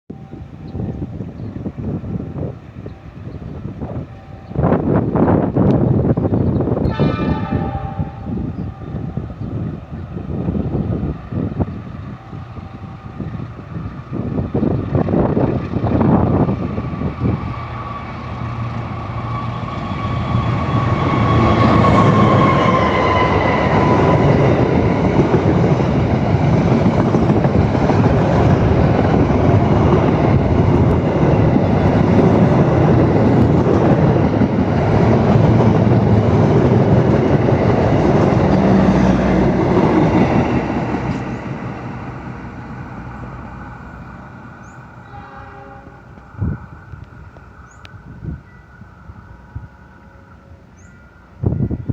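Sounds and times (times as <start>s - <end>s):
train wagons rolling on rails: 0.1s - 51.9s
locomotive tone falling in pitch: 6.7s - 14.0s, 16.6s - 34.6s.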